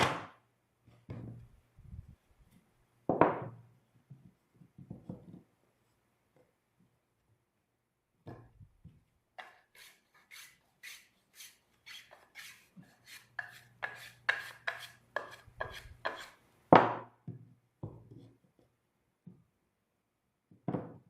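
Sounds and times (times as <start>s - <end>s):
hand tool strokes on wood: 9.4s - 16.4s.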